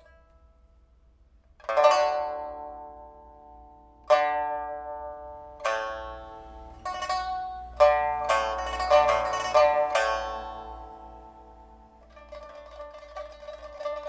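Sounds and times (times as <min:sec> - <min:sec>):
pipa plucked chords: 0:00.0 - 0:14.0.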